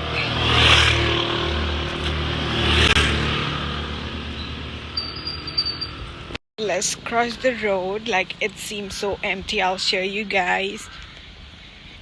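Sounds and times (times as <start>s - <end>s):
steady low traffic rumble: 0.0s - 12.0s
vehicles passing by: 0.0s - 12.0s.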